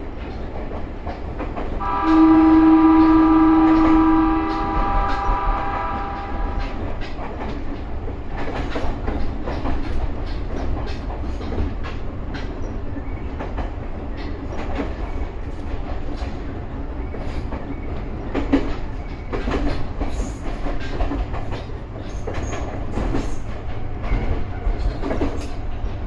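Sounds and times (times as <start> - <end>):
train rumbling: 0.0 - 26.0
train horn: 1.8 - 6.8
wheels clicking over rail joints: 2.8 - 26.0.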